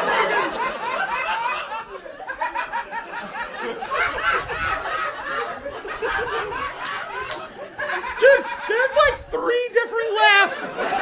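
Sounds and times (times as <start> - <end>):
high-pitched cackles: 0.0 - 9.2
audience laughing: 0.0 - 9.3, 10.3 - 11.0.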